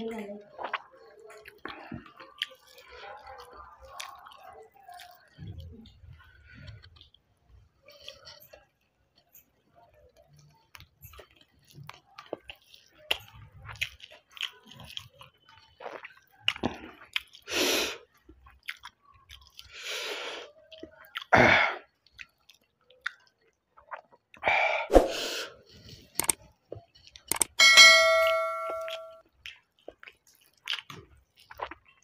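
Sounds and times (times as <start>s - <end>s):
person chewing: 0.5s - 27.6s, 28.2s - 32.0s
wet mouth clicks and smacks: 22.2s - 24.1s, 26.2s - 26.4s, 27.2s - 27.5s.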